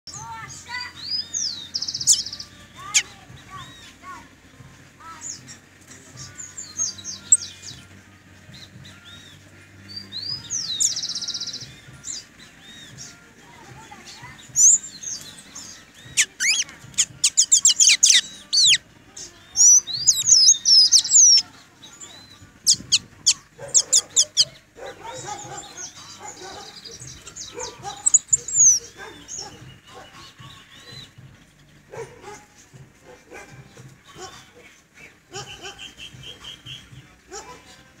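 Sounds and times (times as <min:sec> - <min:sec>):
bird high chirps and whistles: 0:00.8 - 0:04.0, 0:14.4 - 0:18.8, 0:19.5 - 0:21.5, 0:22.2 - 0:24.6, 0:25.2 - 0:31.2.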